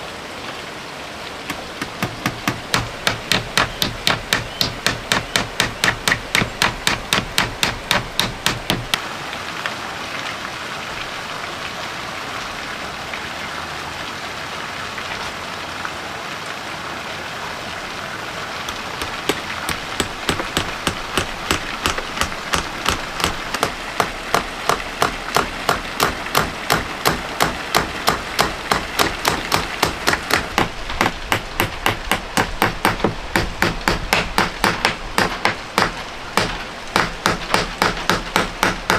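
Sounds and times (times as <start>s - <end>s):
rain hissing: 0.0s - 38.9s
hammer striking wood: 1.5s - 9.0s, 18.7s - 38.9s.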